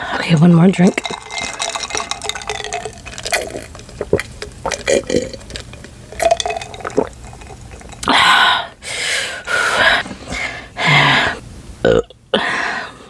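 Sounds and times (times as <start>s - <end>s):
person sipping and swallowing: 0.9s - 8.2s
loud breathy bursts: 8.1s - 11.4s.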